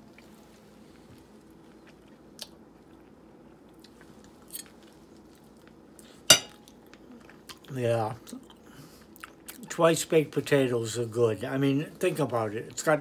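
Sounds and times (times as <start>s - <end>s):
faint chewing: 0.0s - 9.8s.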